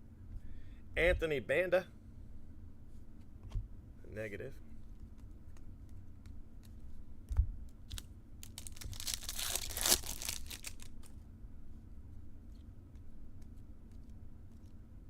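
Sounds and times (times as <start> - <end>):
foil wrapper tearing and crinkling: 7.9 - 11.1.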